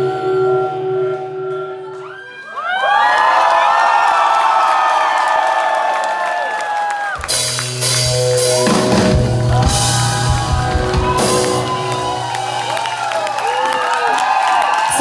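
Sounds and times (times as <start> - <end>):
crowd shouting and whooping: 1.9 - 15.0
rock band playing live: 7.2 - 13.8.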